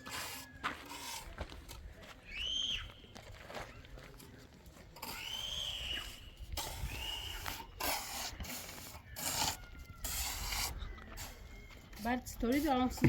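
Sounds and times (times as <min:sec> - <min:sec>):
scraping or rubbing noise: 0:00.0 - 0:01.4, 0:06.5 - 0:11.5.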